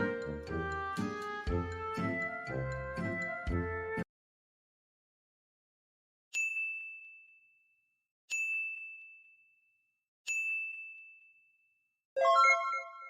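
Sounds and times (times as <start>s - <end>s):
bell-like dings: 6.4s - 7.7s, 8.3s - 9.6s, 10.3s - 11.6s.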